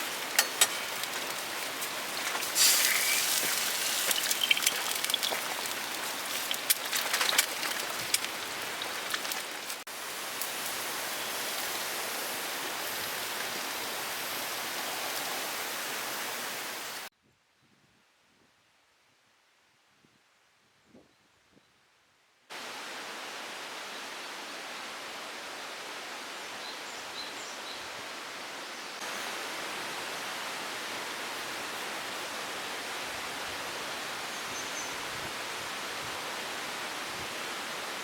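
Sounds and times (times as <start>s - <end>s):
raindrops pattering: 0.0s - 9.9s
rain falling: 0.0s - 17.1s.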